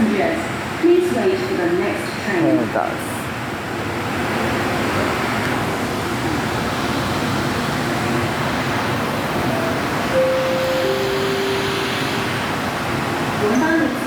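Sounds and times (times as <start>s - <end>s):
train wheels on rails: 4.1s - 14.0s.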